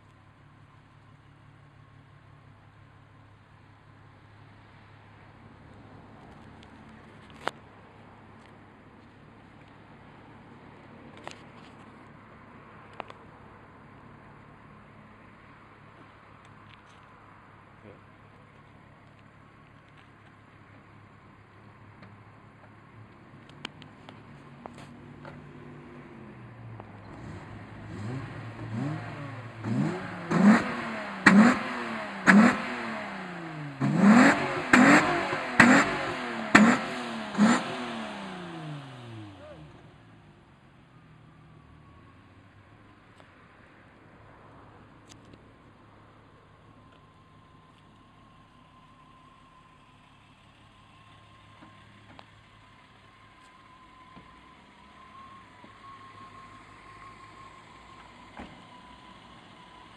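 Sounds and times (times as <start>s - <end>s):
car engine idling: 0.0s - 59.9s
car engine revving in quick blips: 26.1s - 39.9s.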